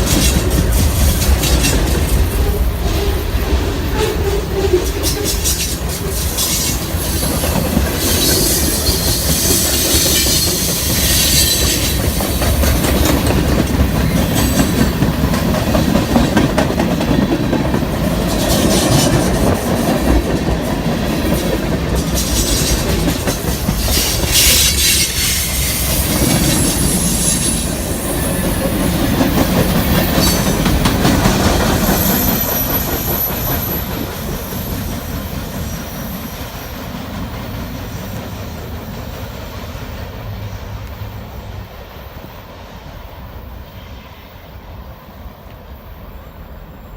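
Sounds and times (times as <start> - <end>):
train wheels rumbling and clacking: 0.0 - 44.0
high wheel squeal: 2.4 - 7.4, 8.0 - 12.4, 23.8 - 29.0.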